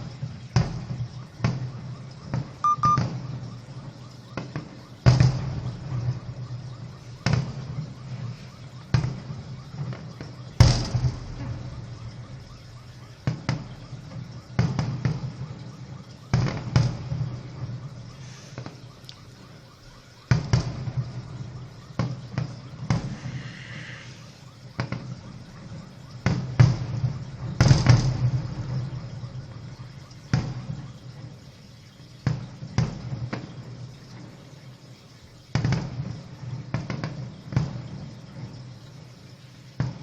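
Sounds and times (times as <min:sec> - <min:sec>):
firework crackle: 0:00.0 - 0:40.0
firework bangs: 0:00.2 - 0:03.4, 0:04.4 - 0:06.5, 0:07.1 - 0:08.3, 0:08.9 - 0:15.4, 0:16.3 - 0:18.9, 0:19.8 - 0:23.5, 0:24.3 - 0:29.1, 0:30.2 - 0:30.9, 0:35.5 - 0:38.5, 0:39.8 - 0:40.0.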